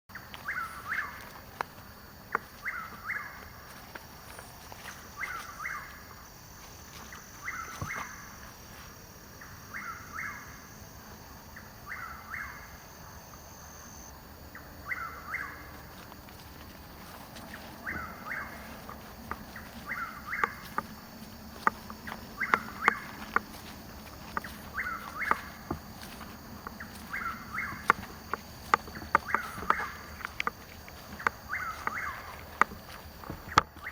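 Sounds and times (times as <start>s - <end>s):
bird singing repeated call: 11.5s - 15.6s, 19.5s - 21.0s, 21.6s - 33.9s.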